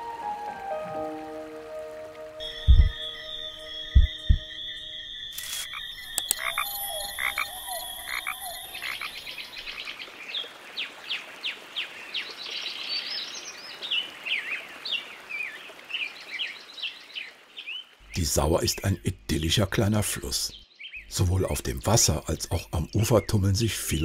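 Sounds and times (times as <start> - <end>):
background music with held tones: 0.0 - 5.2
bird chattering song: 2.4 - 9.9.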